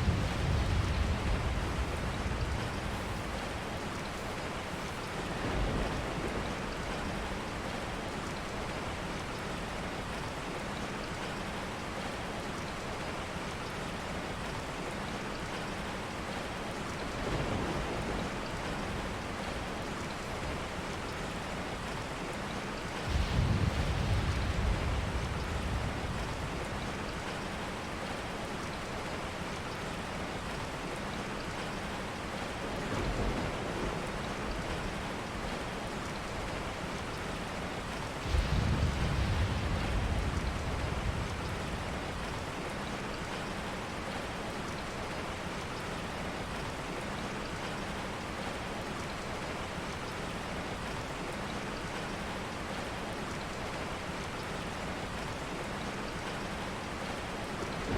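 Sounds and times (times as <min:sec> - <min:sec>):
steady rain: 0:00.0 - 0:57.9.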